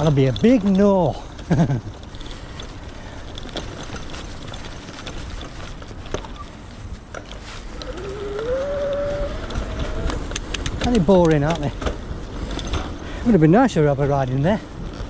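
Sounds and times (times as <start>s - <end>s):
electric bike low rumble: 0.0s - 15.0s
clicks and rattles: 7.1s - 13.0s.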